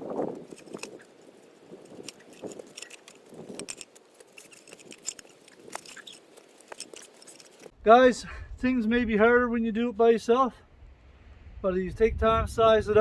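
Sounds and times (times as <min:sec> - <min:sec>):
webbing rustling: 0:00.0 - 0:08.0
metal clinks of strap hardware: 0:01.8 - 0:07.7.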